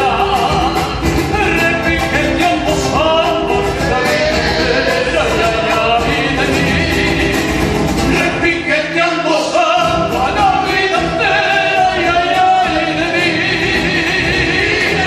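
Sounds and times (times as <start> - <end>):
instrumental accompaniment: 0.0 - 9.0
folk song singing: 0.0 - 15.0.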